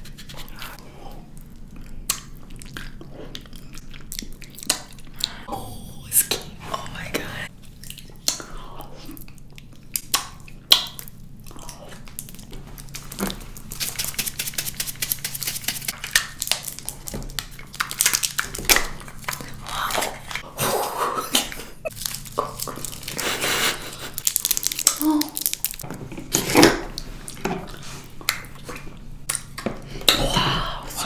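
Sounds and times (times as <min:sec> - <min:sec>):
plastic packaging crinkling: 0:12.8 - 0:19.6, 0:21.9 - 0:25.8.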